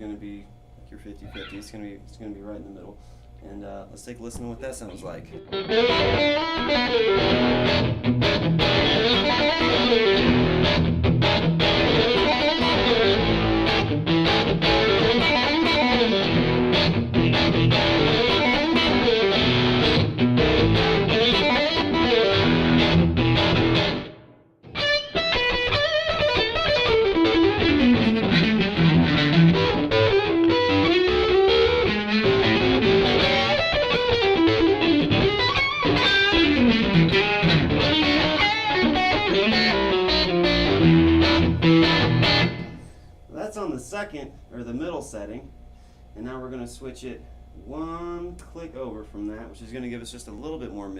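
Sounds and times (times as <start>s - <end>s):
overdriven blues electric guitar: 5.4s - 43.0s.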